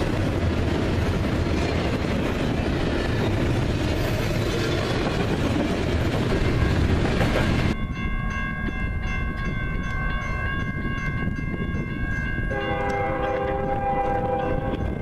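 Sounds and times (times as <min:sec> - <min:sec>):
low rumble of train: 0:00.0 - 0:15.0
locomotive air horn chord: 0:12.5 - 0:14.9.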